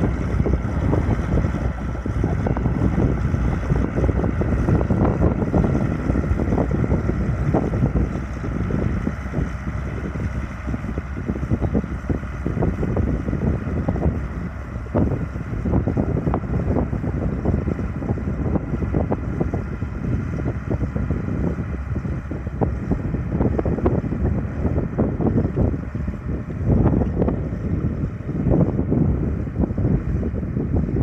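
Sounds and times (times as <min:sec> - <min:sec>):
tractor engine running: 0:00.0 - 0:31.0
wind buffeting microphone: 0:00.0 - 0:31.0.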